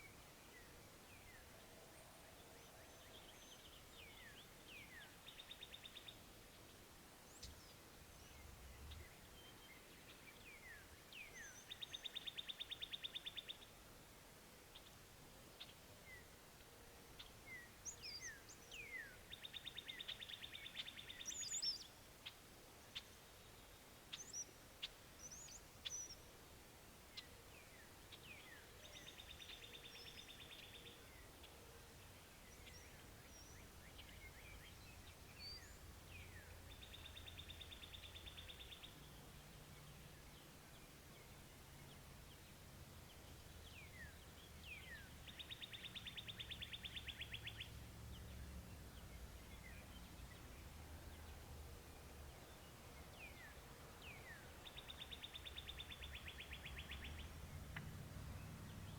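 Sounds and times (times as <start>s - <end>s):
faint low hum: 0.0s - 58.9s
songbird singing trill: 2.6s - 13.8s, 17.2s - 26.3s, 27.1s - 58.9s.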